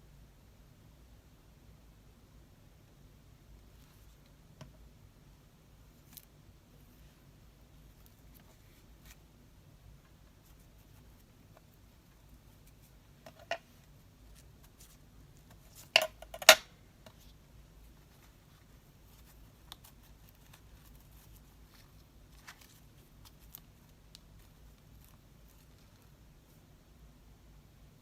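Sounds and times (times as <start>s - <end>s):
light ticks of paper and tools: 18.0s - 26.2s.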